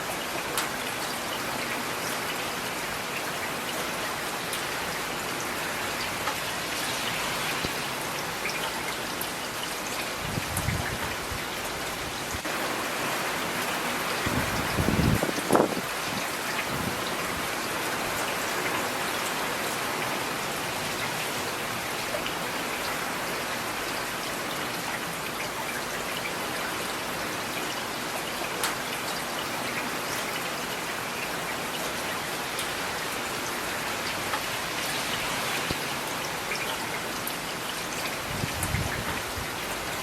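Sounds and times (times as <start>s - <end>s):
rain hissing: 4.4s - 18.2s.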